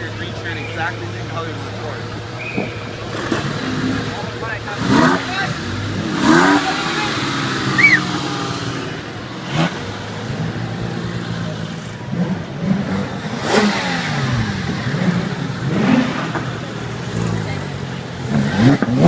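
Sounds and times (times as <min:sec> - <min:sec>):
car engines revving: 0:00.0 - 0:19.0
short high squeal: 0:07.7 - 0:08.1.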